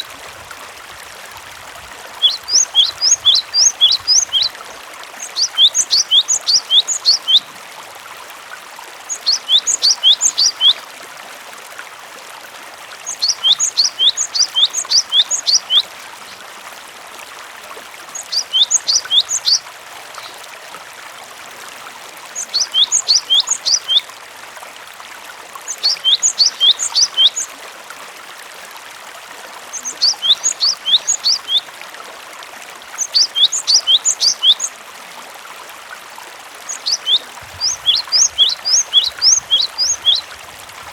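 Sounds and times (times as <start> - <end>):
trickle of running water: 0.0 - 40.9
bird singing high rapid notes: 2.2 - 4.5, 5.2 - 7.4, 9.1 - 10.8, 13.0 - 15.8, 18.1 - 19.6, 22.4 - 24.0, 25.7 - 27.4, 29.8 - 31.6, 33.0 - 34.7, 36.7 - 40.3.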